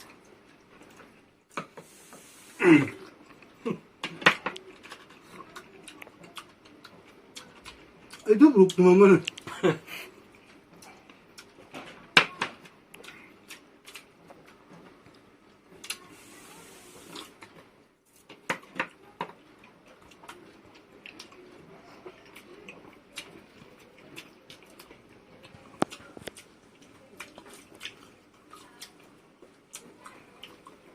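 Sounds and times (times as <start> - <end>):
soft chewing: 0.0 - 30.9
hiss: 1.8 - 2.7, 16.1 - 17.2
clicks and taps of eating: 18.2 - 21.4, 22.3 - 30.8.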